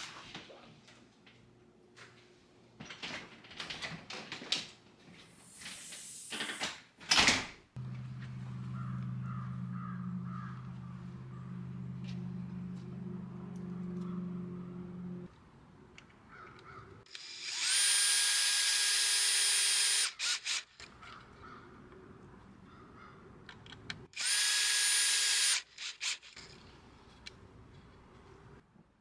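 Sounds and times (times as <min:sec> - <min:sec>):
appliance motor humming: 0:07.8 - 0:15.3.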